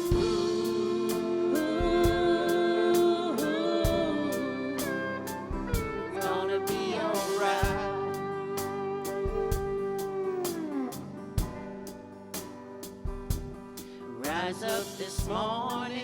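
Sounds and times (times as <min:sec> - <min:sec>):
person singing reggae: 0:00.0 - 0:08.7, 0:14.2 - 0:16.0
guitar with steady beat: 0:00.0 - 0:16.0.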